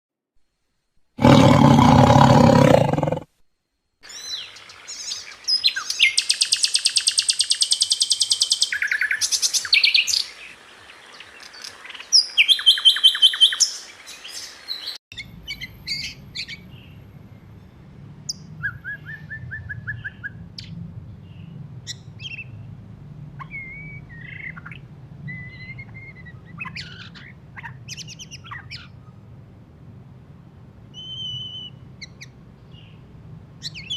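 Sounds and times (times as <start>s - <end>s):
bird singing chattering trills: 4.0s - 10.4s, 23.4s - 29.0s
low steady hum: 15.2s - 33.9s.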